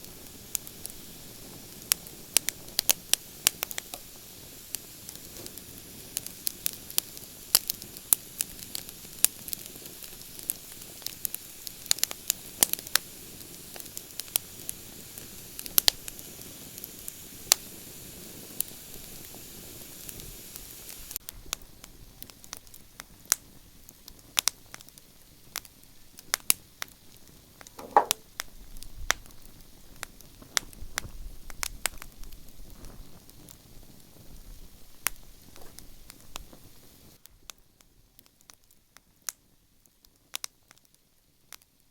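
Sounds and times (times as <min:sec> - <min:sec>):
fire hiss: 0:00.0 - 0:21.2, 0:32.4 - 0:37.2.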